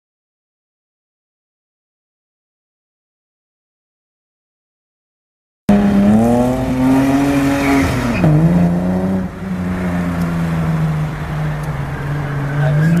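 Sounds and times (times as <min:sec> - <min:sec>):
car engine at high revs: 0:05.7 - 0:13.0.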